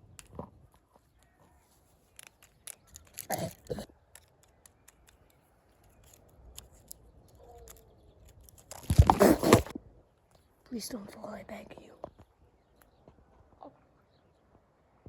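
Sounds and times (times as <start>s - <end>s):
small handling clicks: 0.0s - 9.7s
scraping rustles: 5.7s - 9.7s.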